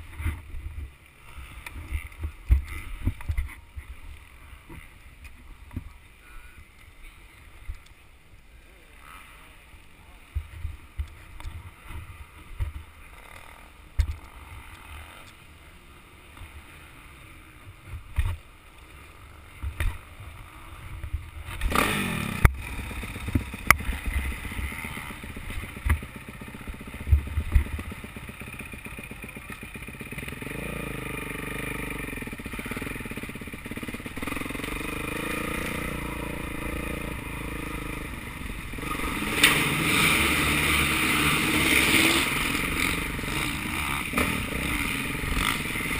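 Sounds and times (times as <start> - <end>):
motocross engine revving: 19.1 - 45.9.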